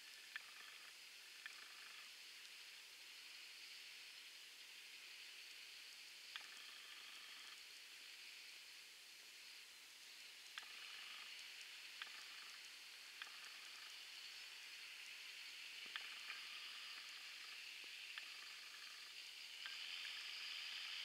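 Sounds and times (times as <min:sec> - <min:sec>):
rain hiss: 0:00.0 - 0:21.0.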